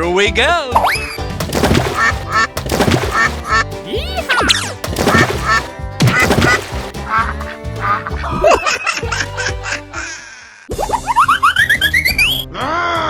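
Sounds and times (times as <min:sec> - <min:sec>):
cartoon background music: 0:00.0 - 0:13.0
quack-like comic sound effects: 0:01.6 - 0:03.6, 0:04.3 - 0:08.6.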